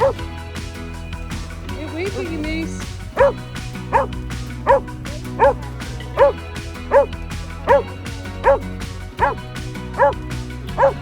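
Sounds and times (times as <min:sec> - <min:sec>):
dog barking: 0:00.0 - 0:00.2, 0:03.1 - 0:08.6, 0:09.2 - 0:09.4, 0:10.0 - 0:10.2, 0:10.8 - 0:11.0
background music: 0:00.0 - 0:11.0.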